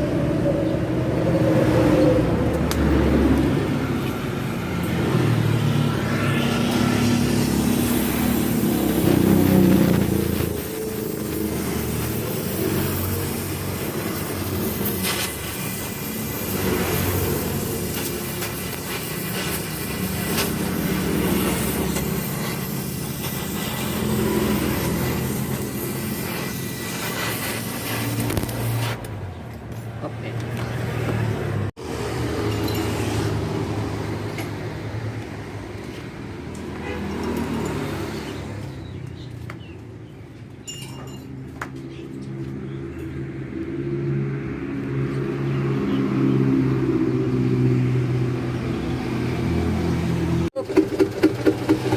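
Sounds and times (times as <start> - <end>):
diesel truck engine drone: 0.0 - 29.4.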